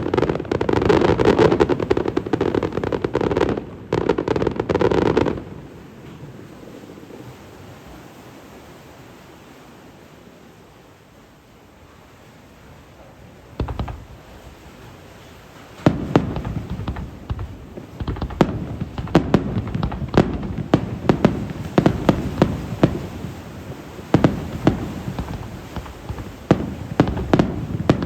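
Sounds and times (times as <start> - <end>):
fireworks bursting: 0.0 - 5.7, 13.5 - 14.7, 15.6 - 28.0.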